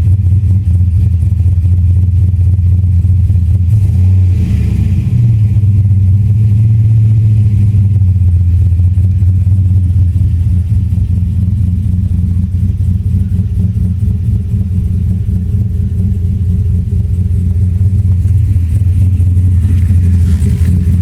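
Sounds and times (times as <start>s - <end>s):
truck engine droning: 0.0s - 21.0s.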